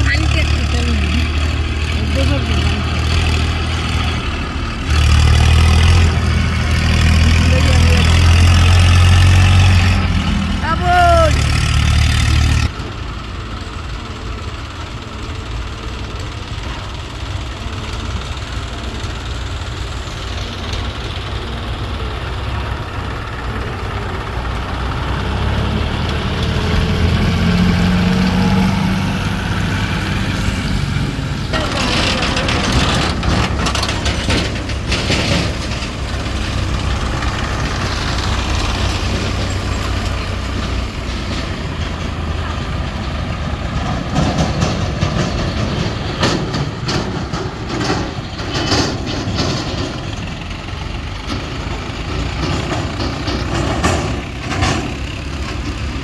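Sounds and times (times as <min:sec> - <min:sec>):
diesel engines running: 0:00.0 - 0:56.0
rattling rushing noise: 0:15.2 - 0:56.0.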